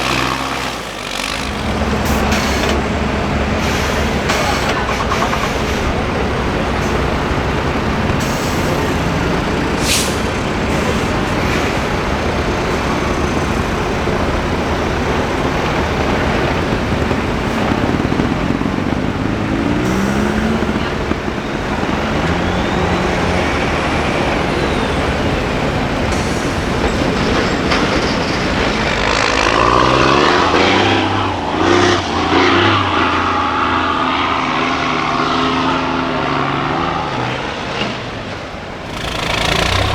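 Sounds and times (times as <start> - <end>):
truck engine revving: 0.0 - 39.9
sharp hiss: 8.2 - 13.8.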